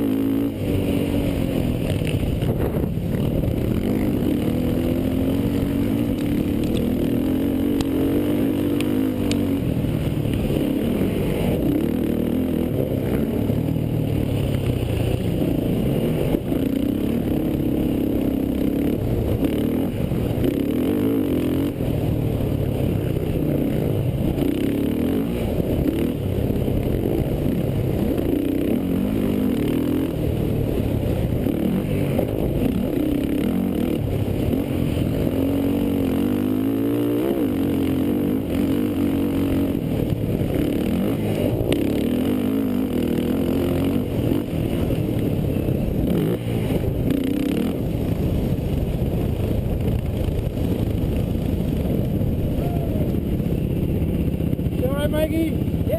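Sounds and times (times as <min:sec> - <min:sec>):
quad engine revving: 0:00.0 - 0:48.3.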